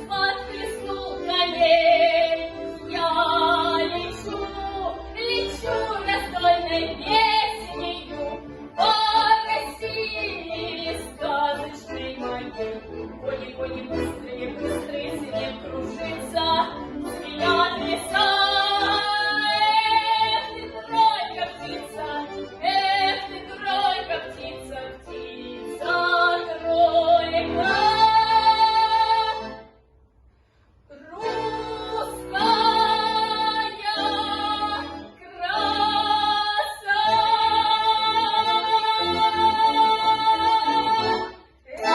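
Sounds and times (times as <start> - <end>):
woman singing: 0.0 - 12.5, 13.3 - 29.4, 30.9 - 41.9.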